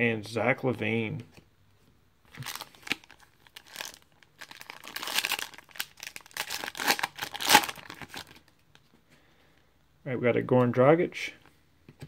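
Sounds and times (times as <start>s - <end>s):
foil wrapper crinkling and tearing: 2.4s - 8.5s.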